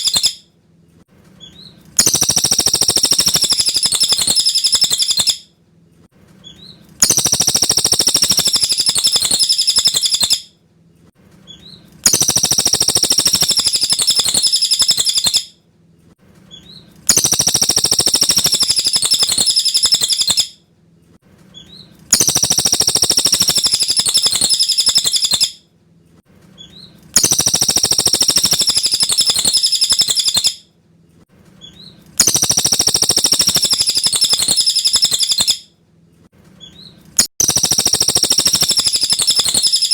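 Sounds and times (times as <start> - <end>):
bird chattering song: 0.0 - 0.4, 1.4 - 5.4, 6.4 - 10.4, 11.5 - 15.5, 16.5 - 20.5, 21.6 - 25.6, 26.6 - 30.6, 31.6 - 35.6, 36.6 - 39.9.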